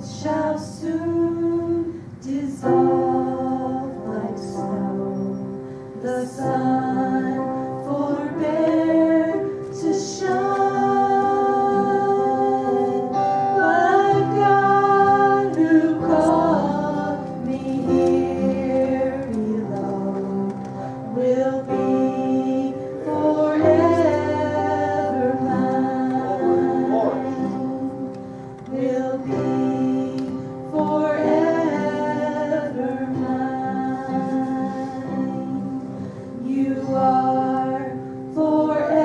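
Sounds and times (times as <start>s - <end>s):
choir singing gospel song: 0.0s - 39.0s.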